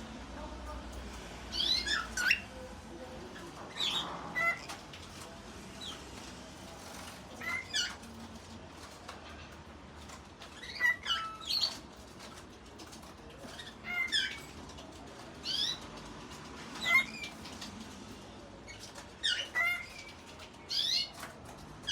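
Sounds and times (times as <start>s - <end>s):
cockatiel chirping: 1.5s - 2.5s, 3.7s - 4.8s, 10.5s - 11.8s, 15.4s - 15.8s, 16.8s - 17.4s, 18.8s - 21.3s.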